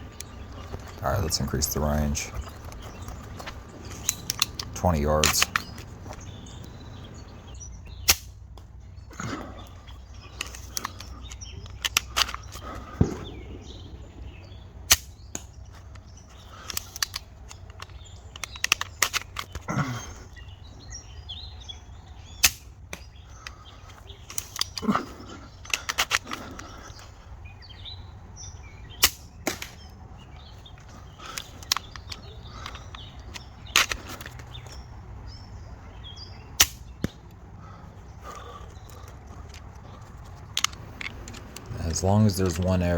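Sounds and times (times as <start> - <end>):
crossbow bands snapping: 14.9 - 19.7, 30.8 - 34.8, 36.6 - 37.3.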